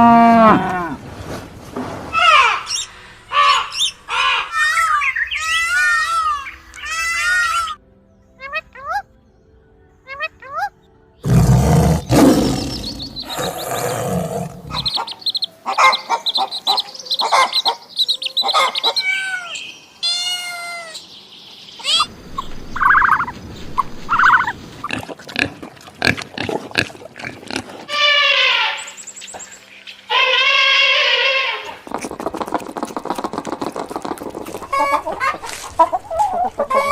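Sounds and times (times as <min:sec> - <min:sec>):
shorter pitched animal cries: 0:18.6 - 0:21.0, 0:30.1 - 0:31.8.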